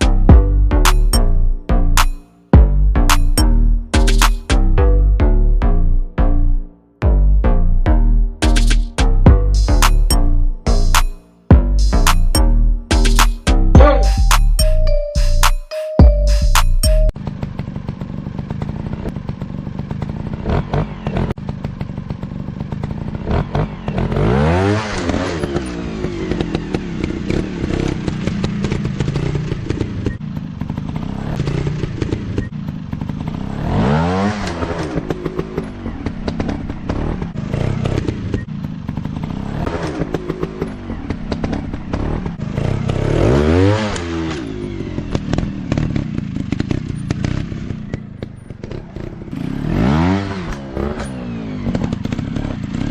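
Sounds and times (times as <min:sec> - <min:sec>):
dirt bike engines revving: 0:17.7 - 0:52.9.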